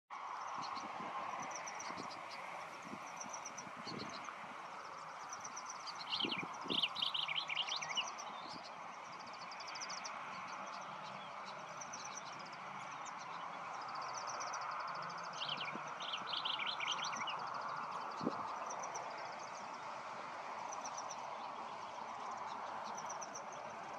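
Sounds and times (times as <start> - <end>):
songbird chattering: 5.1 - 8.7.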